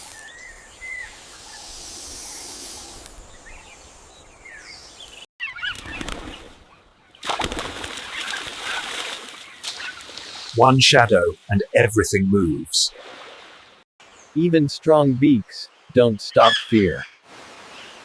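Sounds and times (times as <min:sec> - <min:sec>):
birds chirping: 0:08.1 - 0:12.9
background hiss: 0:10.0 - 0:12.9.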